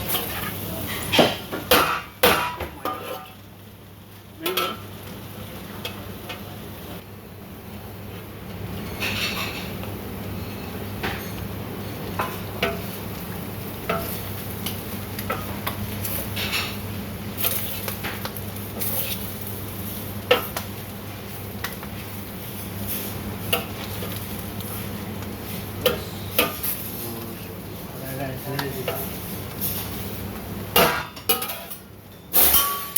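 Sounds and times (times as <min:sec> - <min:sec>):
food sizzling: 0:00.0 - 0:32.9.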